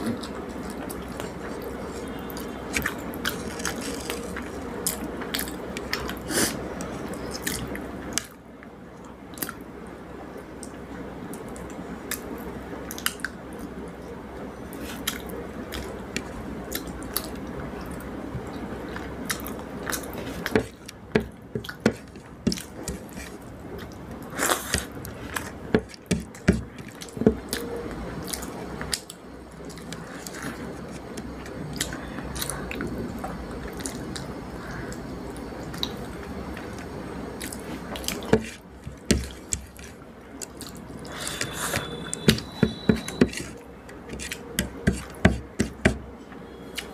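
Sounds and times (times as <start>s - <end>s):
chewing and wet mouth sounds: 0.0s - 8.4s, 9.0s - 9.7s, 14.7s - 42.3s.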